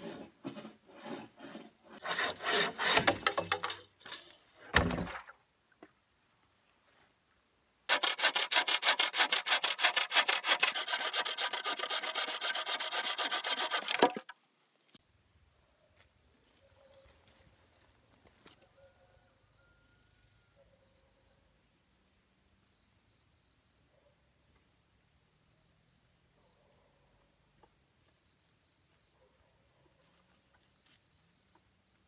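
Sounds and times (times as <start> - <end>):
hand tool scraping wood: 0.0 - 4.4, 7.9 - 14.3.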